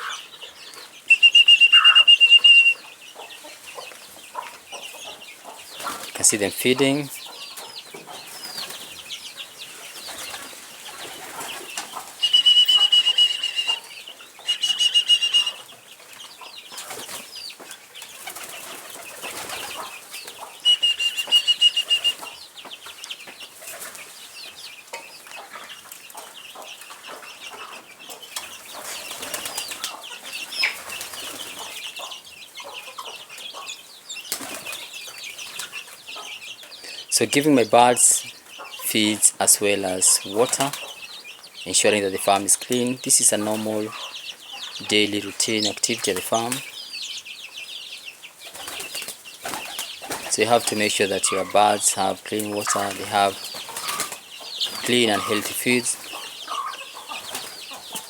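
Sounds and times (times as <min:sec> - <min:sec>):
pigeon wings flapping with whistle: 0:01.1 - 0:02.8, 0:12.2 - 0:13.8, 0:14.5 - 0:15.6, 0:20.6 - 0:22.3.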